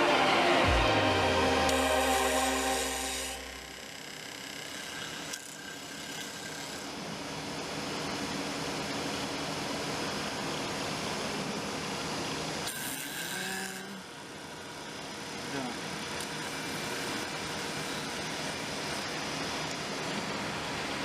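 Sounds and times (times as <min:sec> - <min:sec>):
milling machine cutting metal: 0:01.7 - 0:07.1.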